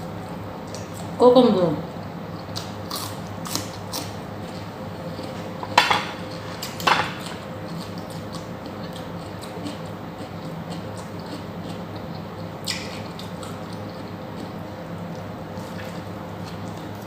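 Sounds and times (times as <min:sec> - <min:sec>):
steady low hum: 0:00.0 - 0:17.0
cutlery clinking against a plate: 0:05.6 - 0:07.4.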